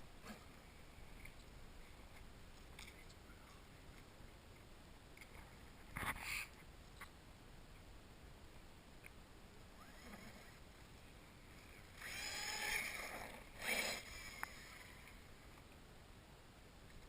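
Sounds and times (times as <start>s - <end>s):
toy truck motor whining: 12.0s - 15.2s.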